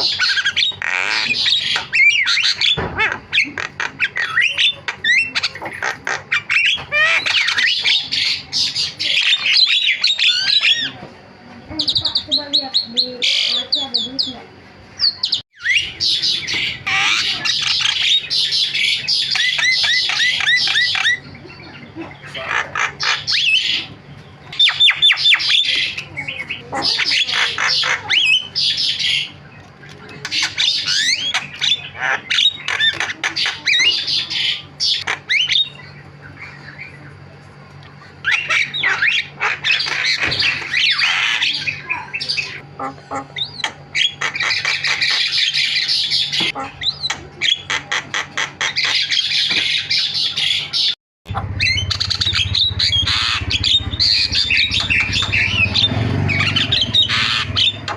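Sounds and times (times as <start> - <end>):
myna chattering song: 0.0 - 37.4, 50.6 - 57.9
other birds calling: 0.0 - 57.9.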